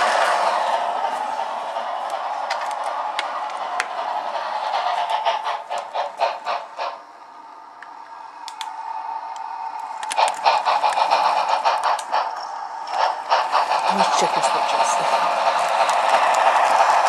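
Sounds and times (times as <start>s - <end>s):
wheels clicking on rails: 0.0s - 17.0s.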